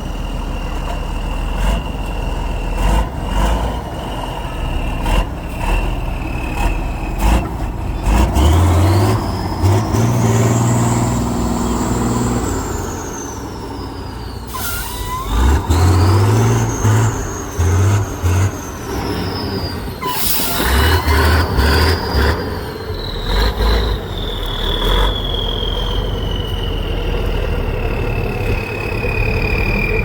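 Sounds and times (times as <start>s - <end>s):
truck engine revving: 0.0s - 30.0s
sharp air hisses: 14.5s - 15.3s, 20.0s - 20.8s.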